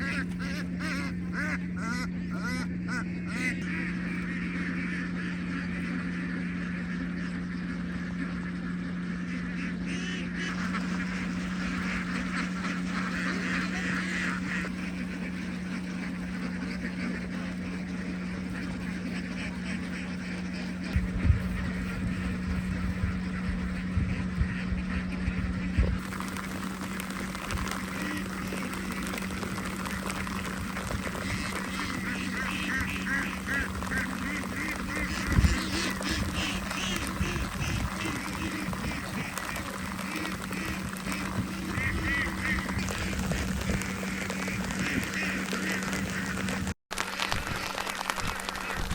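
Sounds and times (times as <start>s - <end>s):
ducks quacking: 0.0s - 46.8s, 47.5s - 48.9s
steady low hum: 0.0s - 48.9s.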